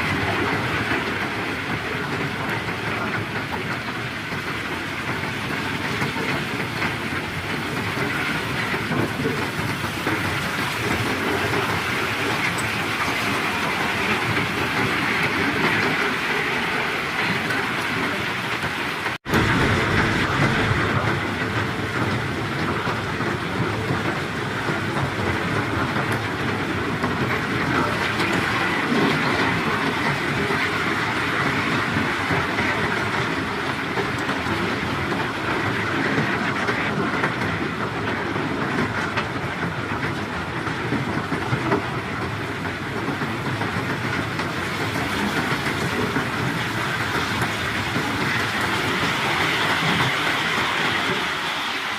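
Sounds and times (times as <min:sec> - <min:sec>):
heavy machinery rumbling and rattling: 0:00.0 - 0:51.9.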